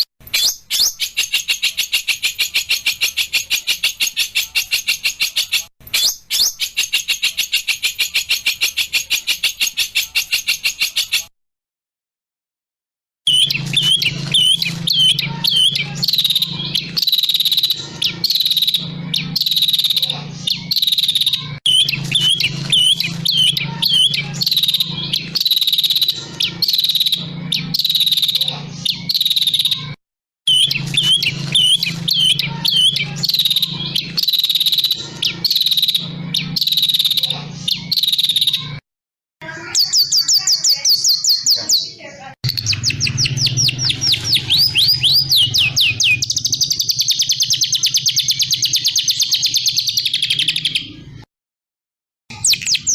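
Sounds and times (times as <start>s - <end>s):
bird trilling: 0.0s - 11.3s, 13.3s - 38.8s, 39.4s - 51.2s, 52.3s - 52.9s
songbird chirping: 13.3s - 38.8s, 39.5s - 51.2s, 52.3s - 52.9s.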